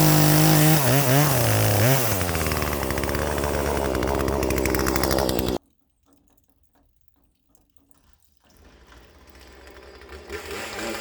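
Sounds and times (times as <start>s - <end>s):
chainsaw running: 0.0s - 5.6s, 9.1s - 11.0s.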